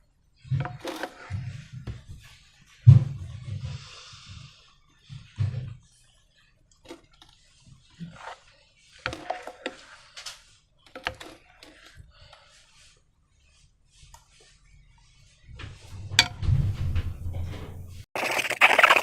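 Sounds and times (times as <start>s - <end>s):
slime squishing: 18.2s - 19.0s.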